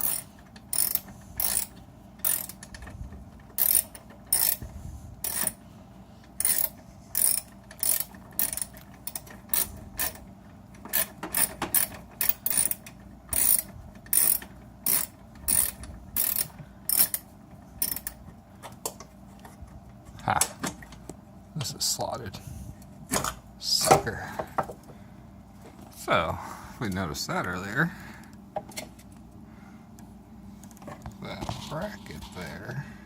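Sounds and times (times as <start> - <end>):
ratchet wrench clicking: 0.0 - 2.7, 3.6 - 4.6, 5.2 - 5.6, 6.4 - 10.2, 10.9 - 18.2.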